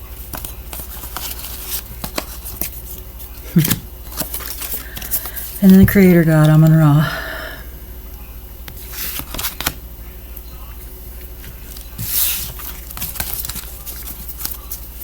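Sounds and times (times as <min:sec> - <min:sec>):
steady low hum: 0:00.0 - 0:15.0
cards shuffling: 0:00.3 - 0:05.8, 0:08.7 - 0:09.8, 0:11.4 - 0:15.0.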